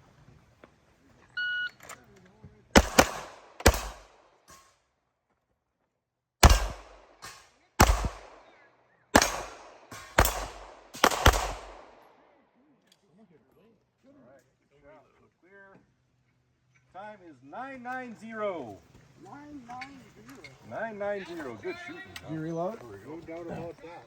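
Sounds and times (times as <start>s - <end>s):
pistol shots: 2.8s - 4.3s, 6.4s - 8.5s, 9.2s - 12.2s.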